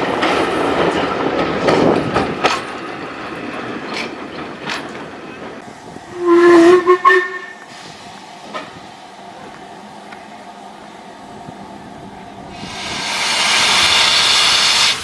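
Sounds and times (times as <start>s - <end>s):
steam locomotive whistle: 6.1s - 7.7s, 12.6s - 15.0s.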